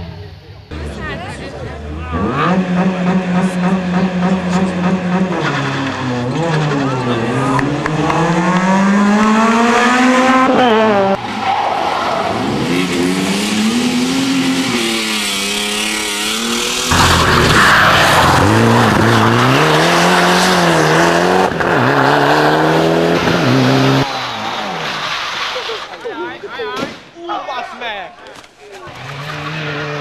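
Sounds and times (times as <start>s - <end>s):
rally car engines revving: 0.0s - 26.5s, 28.8s - 30.0s
loud rushing noise: 12.0s - 21.4s.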